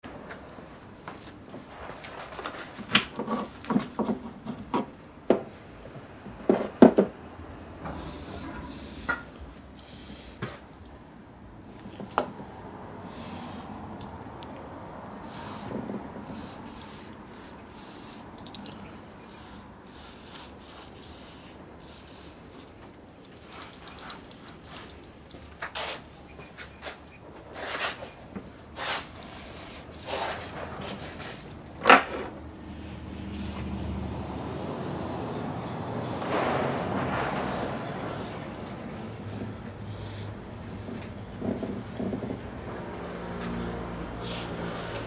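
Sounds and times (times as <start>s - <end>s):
rubbing and scraping on metal: 7.9s - 9.4s, 25.6s - 45.0s.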